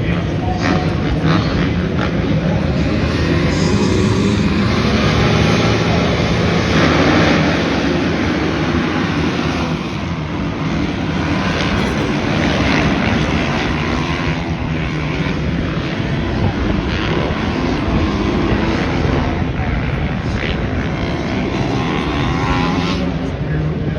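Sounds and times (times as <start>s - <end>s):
dirt bike engines racing: 0.0s - 23.9s.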